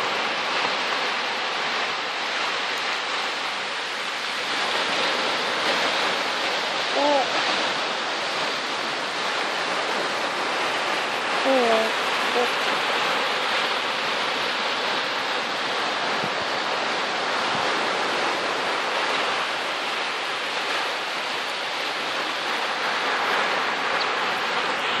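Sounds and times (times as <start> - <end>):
sea surf washing on beach: 0.0 - 25.0.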